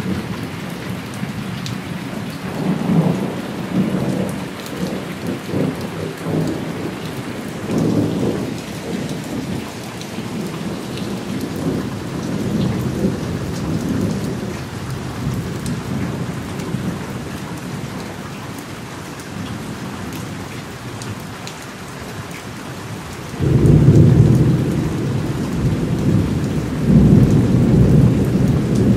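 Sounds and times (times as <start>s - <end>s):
steady rain: 0.0s - 28.9s
rolling thunder: 2.5s - 17.9s, 23.4s - 28.9s.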